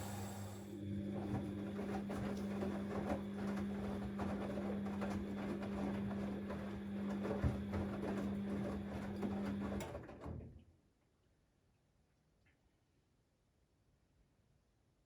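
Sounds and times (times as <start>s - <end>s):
washing machine hum: 0.0s - 10.6s.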